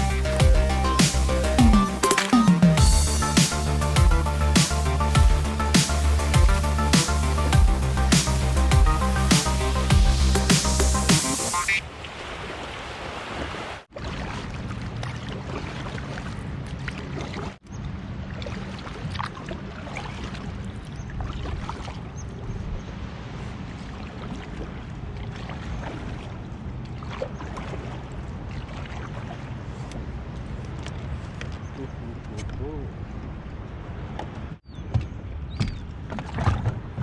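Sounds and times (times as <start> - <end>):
water noise: 0.0 - 37.0
small splashes and knocks: 12.0 - 17.6, 18.3 - 22.2, 23.7 - 31.7, 34.1 - 37.0.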